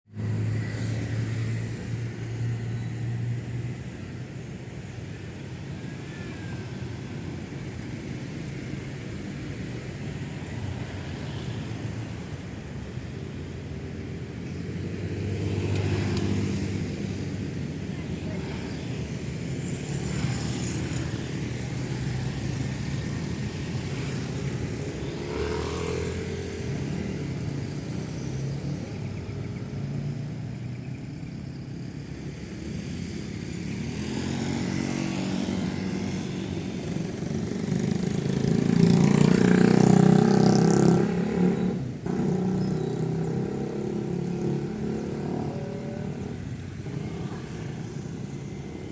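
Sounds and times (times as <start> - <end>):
motorcycles and cars passing: 0.1 - 48.9.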